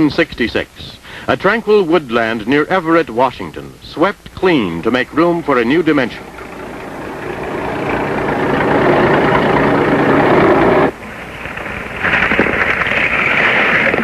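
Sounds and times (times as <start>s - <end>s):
higher-pitched machine noise: 5.0s - 12.1s
loud machinery noise: 5.0s - 14.0s.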